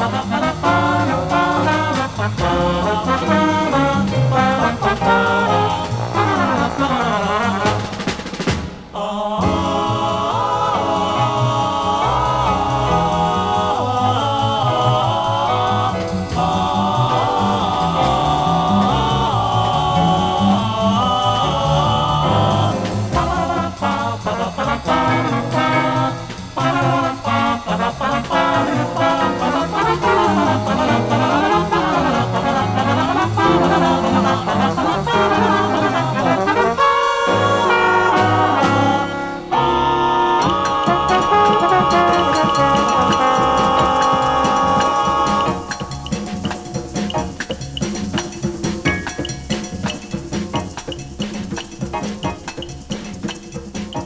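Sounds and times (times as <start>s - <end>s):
jazz band with trumpets and trombones: 0.0s - 54.0s.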